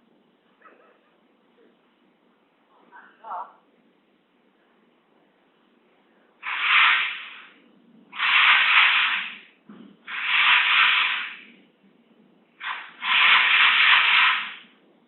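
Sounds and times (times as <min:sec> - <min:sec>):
hissing scraping noises: 0:06.4 - 0:07.6, 0:08.2 - 0:09.5, 0:10.1 - 0:11.6, 0:12.6 - 0:14.7.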